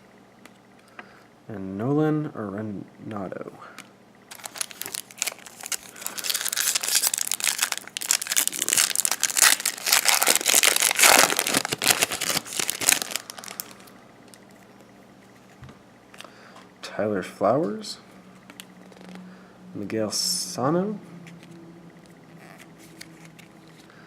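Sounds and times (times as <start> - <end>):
foil wrapper tearing and crumpling: 4.3 - 13.9.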